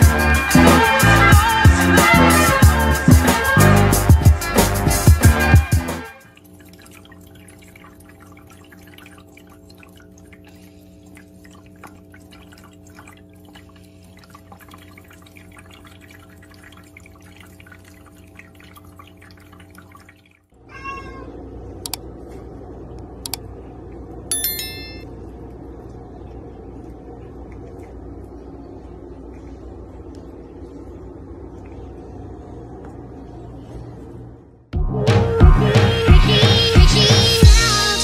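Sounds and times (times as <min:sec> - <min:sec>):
pet fountain humming: 0:06.2 - 0:33.5
cat meowing: 0:20.6 - 0:21.3.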